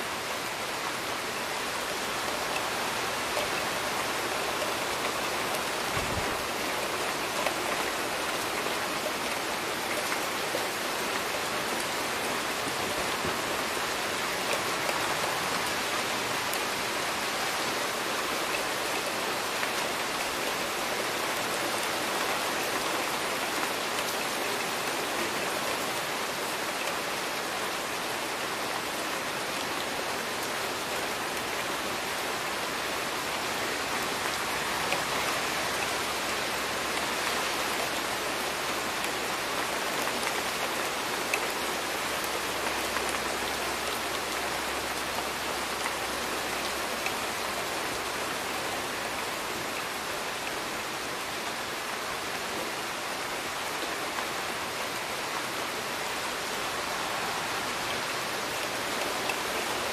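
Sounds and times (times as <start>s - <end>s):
steady rain on hard surface: 0.0s - 59.9s.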